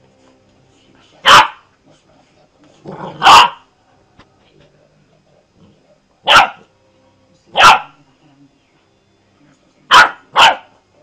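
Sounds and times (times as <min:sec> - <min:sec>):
small dog barking: 0:01.2 - 0:01.7, 0:03.2 - 0:03.6, 0:06.2 - 0:06.7, 0:07.5 - 0:08.0, 0:09.9 - 0:10.8.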